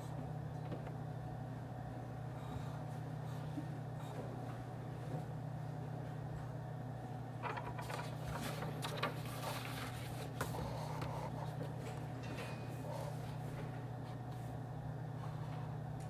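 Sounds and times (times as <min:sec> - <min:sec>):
steady low office hum: 0:00.0 - 0:16.0.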